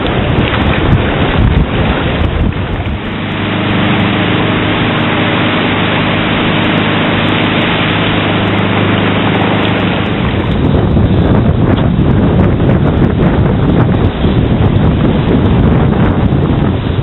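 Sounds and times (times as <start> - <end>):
ocean surf: 0.0 - 11.7
low hum: 0.0 - 17.0
wind on microphone: 0.0 - 17.0.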